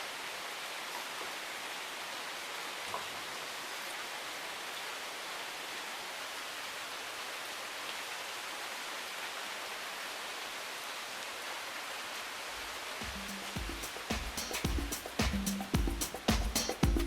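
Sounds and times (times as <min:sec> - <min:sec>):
steady hiss: 0:12.0 - 0:17.0.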